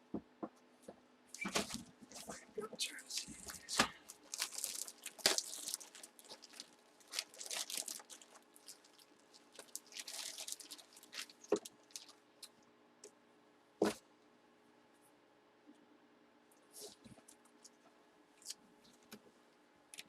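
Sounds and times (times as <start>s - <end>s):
plastic bags crinkling: 1.4s - 12.2s.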